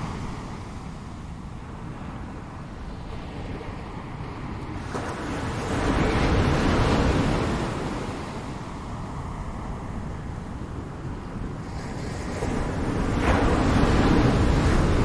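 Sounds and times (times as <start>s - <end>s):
low wind rumble: 0.0s - 15.0s
ocean waves crashing: 11.4s - 15.0s.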